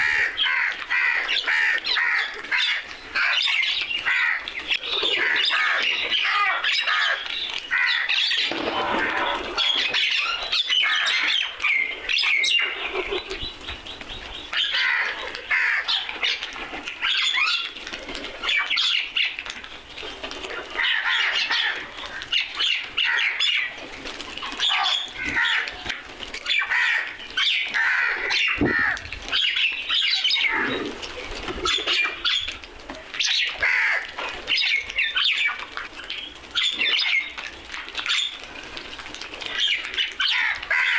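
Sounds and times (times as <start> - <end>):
crows cawing: 0.0 - 4.5, 5.1 - 11.5, 14.6 - 16.1, 24.7 - 25.8, 26.5 - 29.1, 33.6 - 34.2, 40.2 - 40.9.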